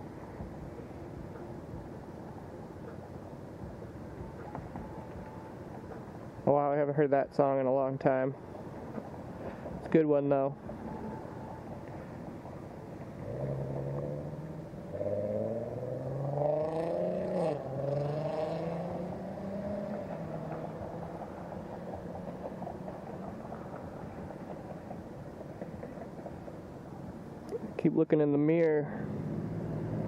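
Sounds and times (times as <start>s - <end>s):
vehicle engine accelerating: 12.5s - 25.0s, 28.9s - 30.0s.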